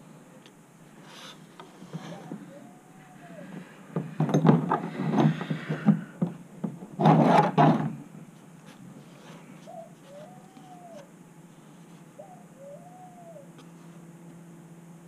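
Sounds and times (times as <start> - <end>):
faint steady hum: 0.0 - 15.0
low cooing bird calls: 1.2 - 3.9, 9.3 - 11.2, 12.0 - 13.8.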